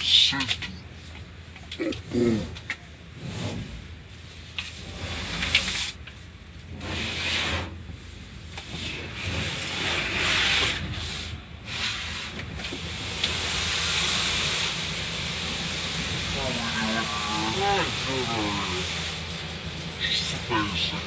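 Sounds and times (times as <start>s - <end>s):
car wash water spray: 3.0s - 21.0s.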